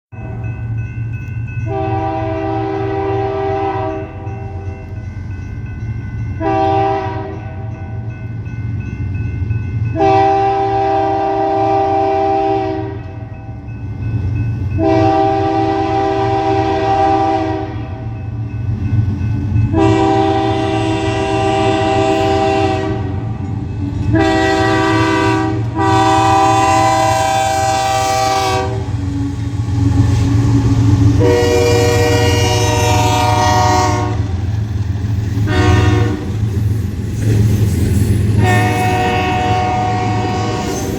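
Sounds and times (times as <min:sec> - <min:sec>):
train rumbling past: 0:00.1 - 0:40.9
locomotive horn blasts: 0:01.6 - 0:04.6, 0:06.4 - 0:07.5, 0:10.0 - 0:13.3, 0:14.8 - 0:18.0, 0:19.7 - 0:23.4, 0:24.1 - 0:29.0, 0:31.1 - 0:34.4, 0:35.5 - 0:36.4, 0:38.4 - 0:40.9.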